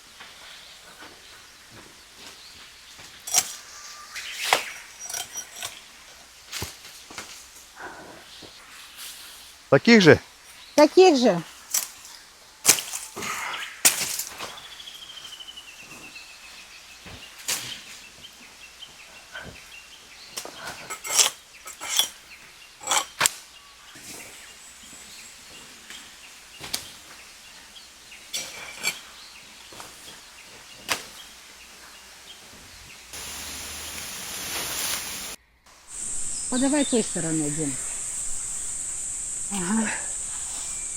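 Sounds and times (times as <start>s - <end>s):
wooden sticks snapping: 3.3s - 3.6s, 11.7s - 13.2s, 13.9s - 14.6s, 30.9s - 31.2s.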